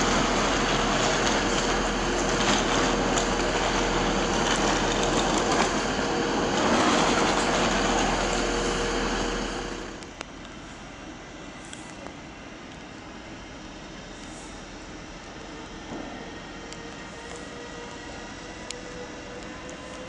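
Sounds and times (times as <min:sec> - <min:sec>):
electric train rushing past: 0:00.0 - 0:10.0.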